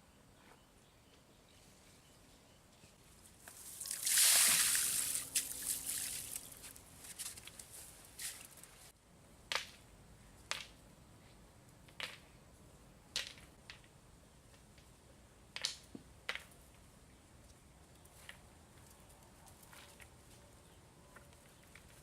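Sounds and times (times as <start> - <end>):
water splashing: 3.6 - 6.8
water drips and plops: 3.7 - 6.6.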